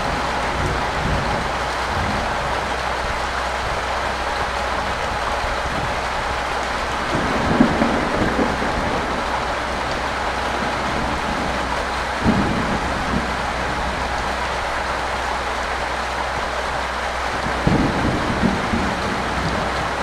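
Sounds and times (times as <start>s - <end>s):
steady rain hiss: 0.0s - 20.0s.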